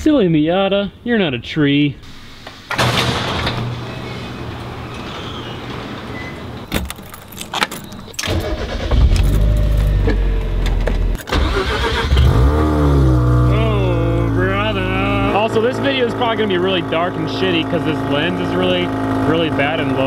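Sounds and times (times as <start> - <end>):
keys jangling: 6.7 - 8.2
engine revving: 8.3 - 20.0
car engine running: 12.2 - 20.0.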